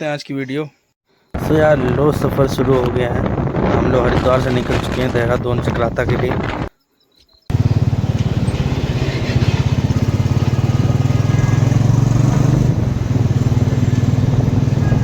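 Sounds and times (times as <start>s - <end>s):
motorcycle engine running: 7.5s - 15.0s.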